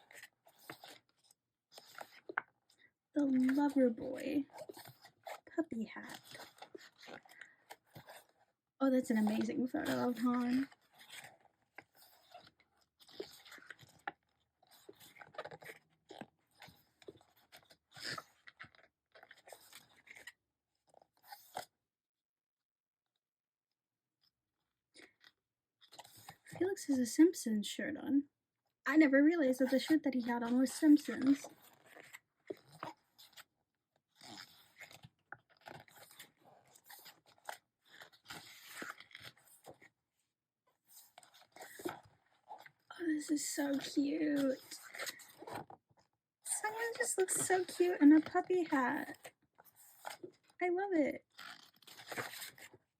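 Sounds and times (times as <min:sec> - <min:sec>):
book pages rustling and crinkling: 0:00.0 - 0:08.5, 0:09.1 - 0:20.4, 0:21.0 - 0:21.7, 0:25.2 - 0:26.7, 0:30.6 - 0:40.0, 0:40.8 - 0:42.9, 0:43.6 - 0:45.9, 0:46.6 - 0:50.6, 0:51.2 - 0:52.9.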